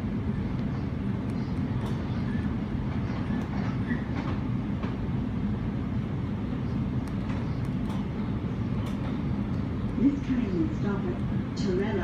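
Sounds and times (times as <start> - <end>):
wheels rumbling on track: 0.0 - 12.0
faint clicks over rail joints: 0.6 - 5.0, 7.0 - 9.6.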